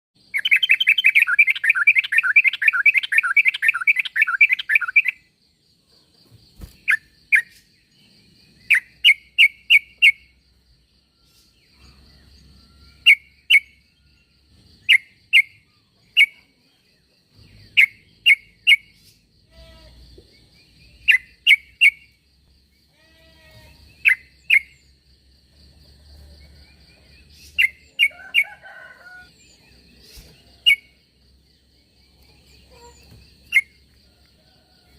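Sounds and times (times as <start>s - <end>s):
bulbul calls: 0.3s - 5.2s, 17.6s - 22.2s, 23.9s - 24.9s, 29.9s - 31.0s, 32.4s - 33.8s.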